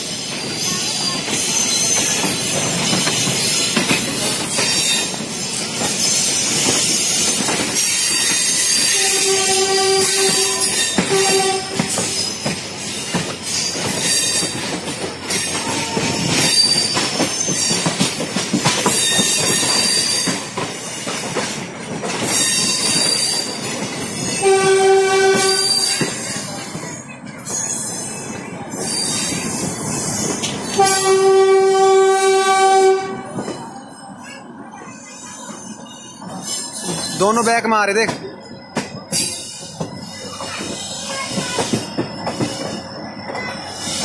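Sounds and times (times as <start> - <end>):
train wheels squealing: 0.0 - 31.2, 33.4 - 44.0
train wheels clattering over joints: 0.0 - 34.1, 34.8 - 44.0
train horn blast: 8.9 - 12.1, 24.4 - 26.0, 30.8 - 33.4.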